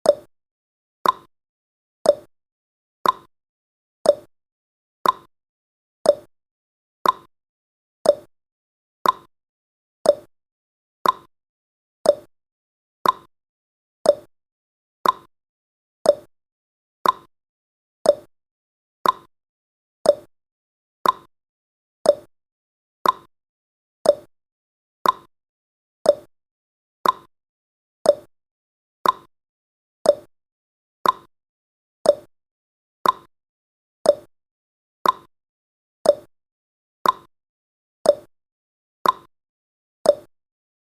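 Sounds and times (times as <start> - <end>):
clock ticking: 3.0 - 3.3, 5.0 - 5.3, 7.0 - 7.3, 9.0 - 9.3, 11.0 - 11.3, 13.0 - 13.3, 15.0 - 15.3, 16.1 - 16.3, 17.0 - 17.3, 18.1 - 18.3, 19.0 - 19.3, 21.0 - 21.3, 22.1 - 22.3, 23.0 - 23.3, 24.0 - 24.3, 25.0 - 25.3, 26.1 - 26.3, 27.0 - 27.3, 28.1 - 28.3, 29.0 - 29.3, 30.1 - 30.3, 31.0 - 31.3, 32.1 - 32.3, 33.0 - 33.3, 34.1 - 34.3, 35.0 - 35.3, 36.1 - 36.3, 37.0 - 37.3, 38.1 - 38.3, 39.0 - 39.3.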